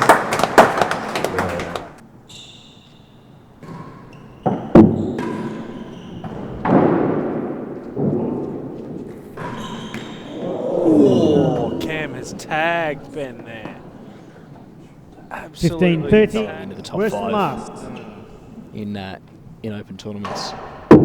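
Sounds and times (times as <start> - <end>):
racquet striking ball: 3.4 - 14.4.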